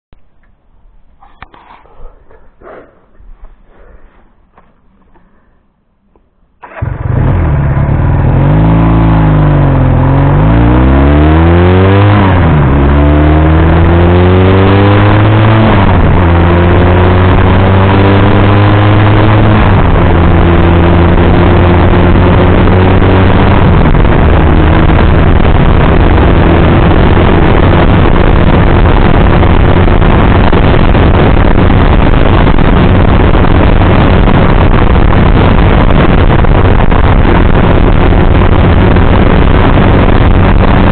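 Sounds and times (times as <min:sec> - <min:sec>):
motorcycle engine accelerating: 0:06.6 - 0:40.9
rush of noise: 0:06.6 - 0:40.9.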